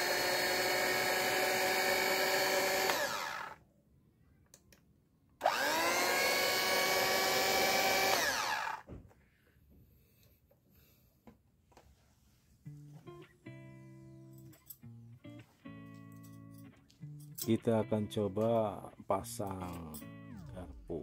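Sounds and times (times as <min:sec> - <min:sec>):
hand mixer motor whining: 0:00.0 - 0:03.6, 0:05.4 - 0:08.9.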